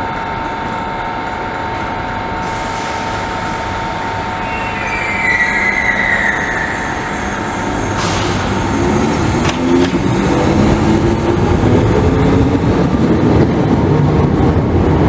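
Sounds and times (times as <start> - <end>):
electric train humming: 0.0 - 15.0
train wheels squealing: 3.6 - 9.0.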